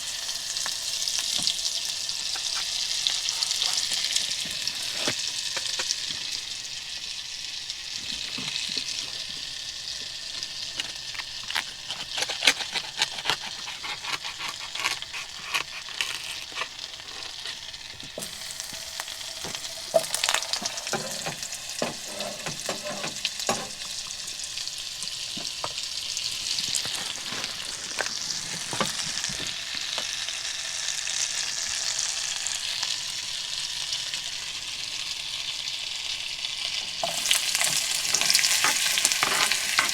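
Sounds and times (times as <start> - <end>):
food sizzling in a frying pan: 0.0 - 39.9
utensil scraping and clicking: 10.7 - 17.6, 37.0 - 39.9.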